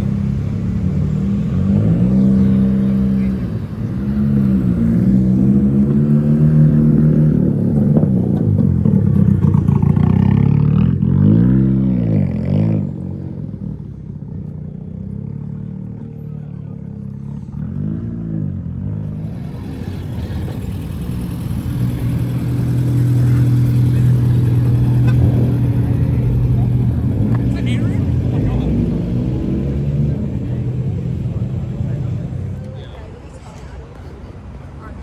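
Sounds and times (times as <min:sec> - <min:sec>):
car engine revving: 0:00.0 - 0:33.4
steady engine drone: 0:00.0 - 0:35.0.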